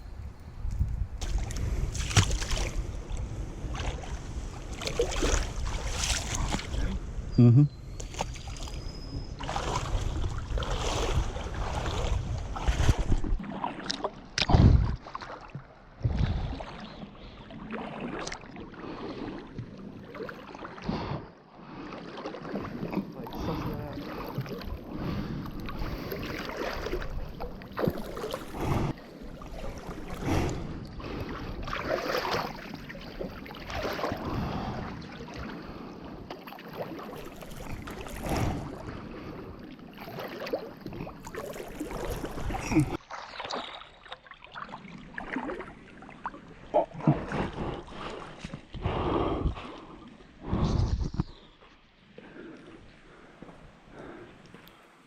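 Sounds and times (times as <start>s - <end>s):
wind on microphone: 0.0s - 13.4s, 14.4s - 15.0s, 16.0s - 16.8s, 33.2s - 36.3s, 37.3s - 39.7s, 47.0s - 51.6s
water splashing in slow strokes: 1.2s - 7.2s, 8.0s - 54.8s.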